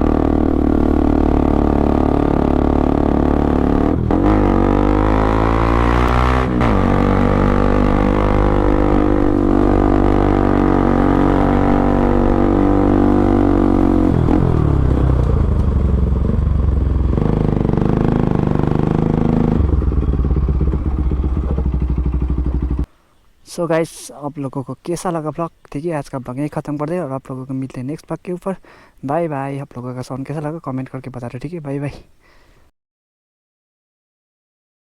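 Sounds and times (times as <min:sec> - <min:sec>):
motorcycle engine running: 0:00.0 - 0:22.9.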